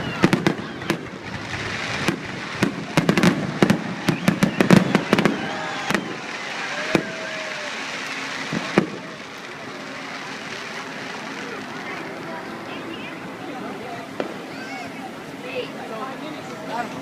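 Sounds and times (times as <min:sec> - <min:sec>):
fireworks bangs and pops: 0:00.0 - 0:12.3, 0:14.1 - 0:14.6.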